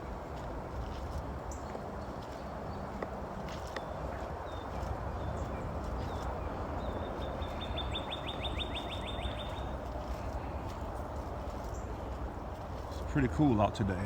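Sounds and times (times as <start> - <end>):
footsteps through scrub: 0.2 - 13.7
songbird trill: 3.7 - 10.6
faint bird chirps: 6.8 - 9.7.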